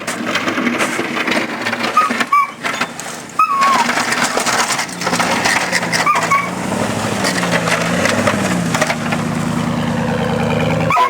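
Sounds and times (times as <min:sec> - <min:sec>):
snow plow scraping snow: 0:00.0 - 0:11.0
truck engine hum: 0:00.0 - 0:11.0
dog whining: 0:03.4 - 0:04.4, 0:05.9 - 0:06.6, 0:09.7 - 0:11.0.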